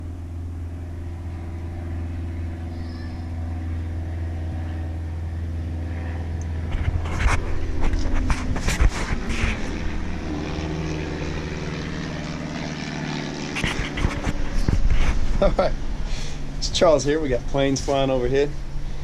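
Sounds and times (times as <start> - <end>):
propeller airplane engine drone: 0.0 - 19.0
sharp knocks and rustles: 6.5 - 10.6, 13.3 - 15.6.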